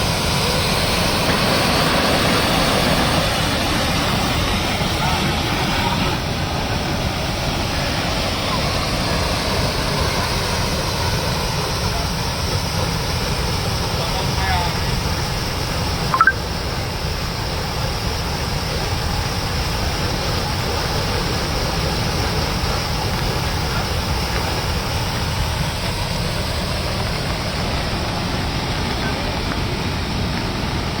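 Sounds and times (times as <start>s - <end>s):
water rushing through floodgate: 0.0s - 31.0s.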